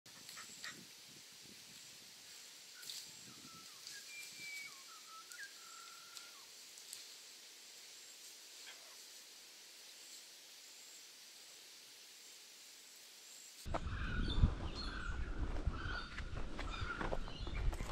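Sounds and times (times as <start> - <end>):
steady high hiss: 0.1 - 13.7.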